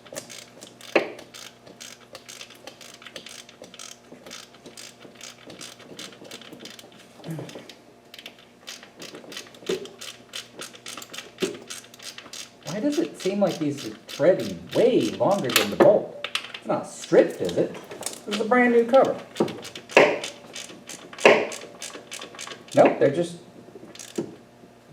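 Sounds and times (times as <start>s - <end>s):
socket ratchet clicking: 0.0s - 7.0s, 8.2s - 15.8s, 19.3s - 22.8s, 23.9s - 24.3s.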